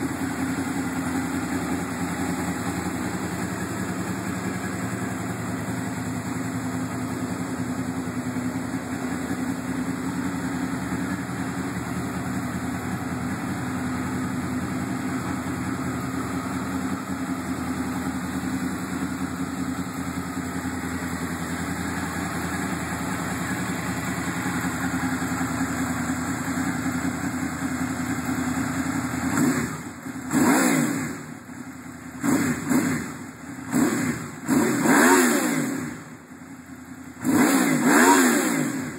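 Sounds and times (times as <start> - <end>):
motorcycle engine idling: 0.0 - 38.9
engine revving blips: 33.7 - 36.0, 37.2 - 38.9.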